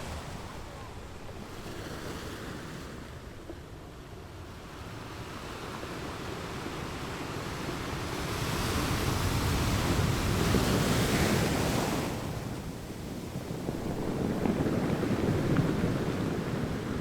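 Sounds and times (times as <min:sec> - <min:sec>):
ocean wave washing: 0:00.0 - 0:03.4.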